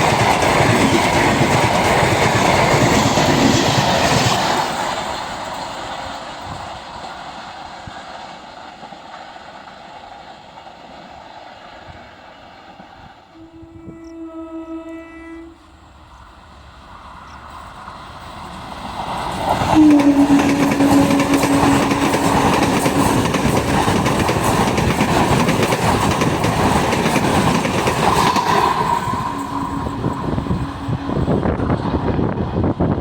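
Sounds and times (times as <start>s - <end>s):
train wheels rolling on rails: 0.0s - 14.2s, 15.6s - 33.0s
train horn: 13.3s - 15.9s, 19.7s - 23.6s, 28.2s - 32.3s.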